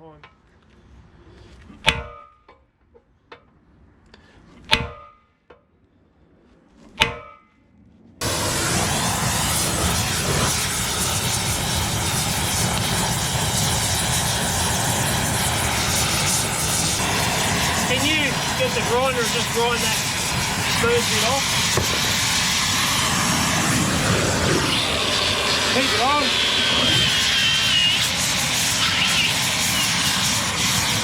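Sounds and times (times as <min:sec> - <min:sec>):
loud steady machine noise: 0:08.2 - 0:31.0.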